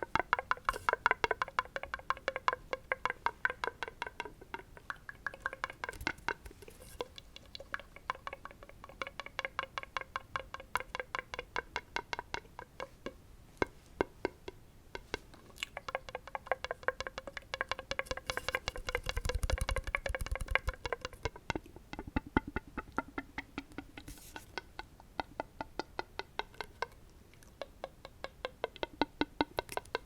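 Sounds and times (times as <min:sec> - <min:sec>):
rapid tapping on hard object: 0:00.0 - 0:14.5, 0:15.9 - 0:24.4.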